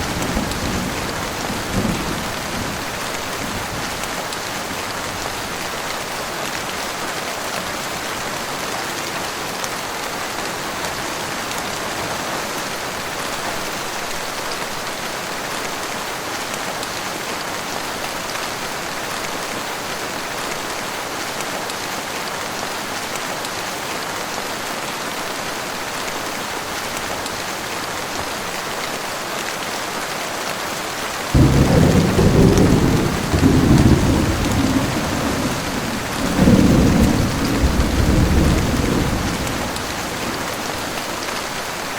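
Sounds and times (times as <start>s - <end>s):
heavy rain falling: 0.0s - 41.9s
loud low thunder rumble: 31.4s - 40.4s.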